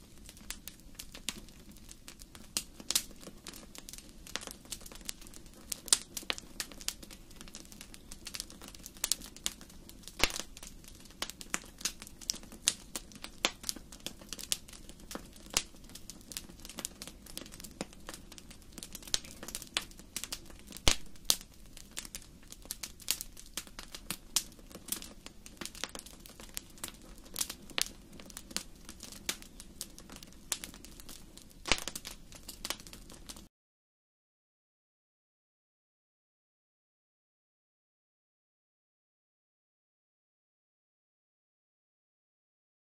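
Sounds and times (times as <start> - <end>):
wood fire crackling: 0.0 - 33.5.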